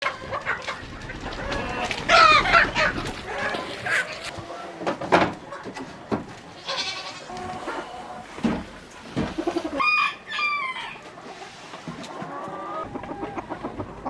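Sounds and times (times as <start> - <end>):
goats bleating: 6.5 - 8.2.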